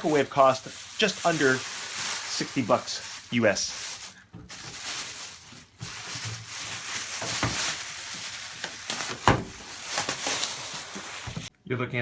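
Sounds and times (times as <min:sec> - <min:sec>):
cardboard box rustling and crackling: 0:00.9 - 0:11.5.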